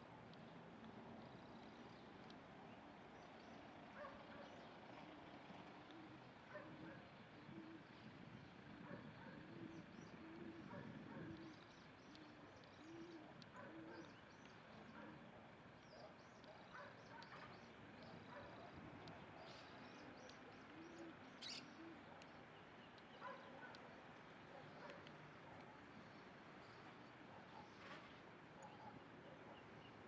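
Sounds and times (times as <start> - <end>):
doves cooing: 3.9 - 27.8
small birds chirping: 8.5 - 27.8.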